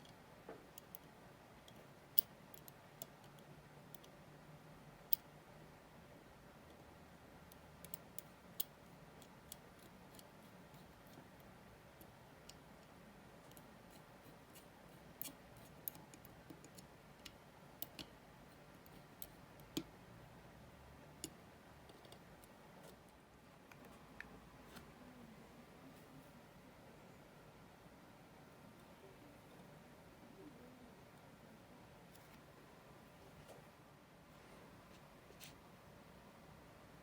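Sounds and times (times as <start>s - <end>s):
small tools clicking on watch parts: 0.0s - 4.2s, 5.1s - 5.3s, 7.5s - 19.9s
faint room hum: 0.0s - 37.0s.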